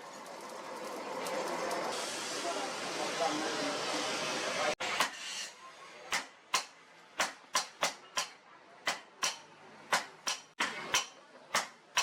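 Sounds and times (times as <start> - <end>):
hammer striking steel on anvil: 6.1 - 12.0.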